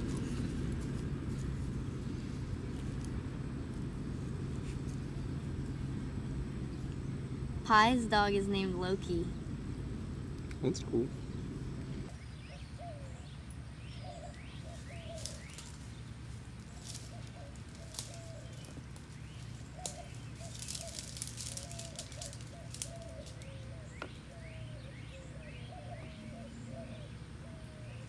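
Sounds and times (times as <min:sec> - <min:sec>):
rustling hiss: 0:00.0 - 0:12.1, 0:14.6 - 0:23.6
birds chirping: 0:00.0 - 0:28.0
steady low hum: 0:00.0 - 0:28.0.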